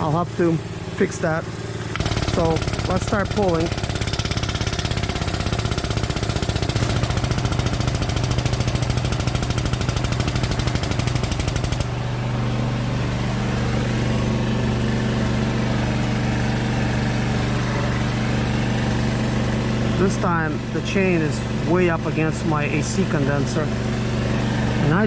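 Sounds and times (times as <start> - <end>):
pump pulsing chatter: 0.0 - 11.8, 19.8 - 25.0.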